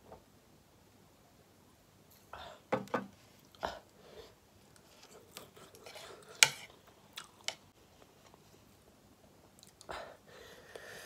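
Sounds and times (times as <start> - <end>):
person chewing food: 4.8 - 7.6.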